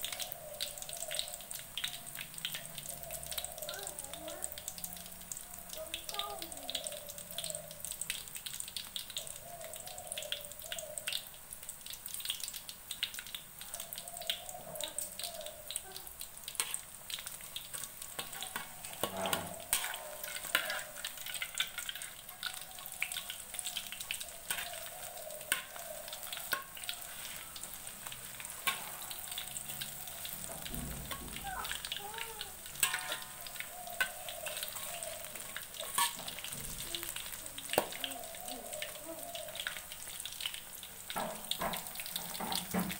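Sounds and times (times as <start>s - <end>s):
deep-frying crackling sizzle: 0.0s - 42.9s
metal ladle clinking against wok: 32.8s - 33.4s, 35.8s - 36.4s.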